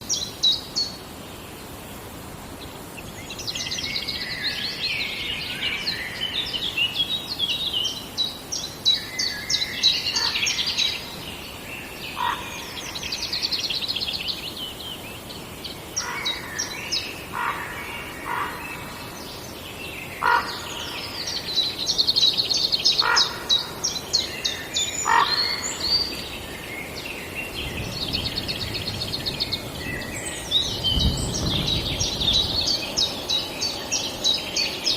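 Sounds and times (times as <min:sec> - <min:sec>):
songbirds high trills: 0:15.8 - 0:34.9.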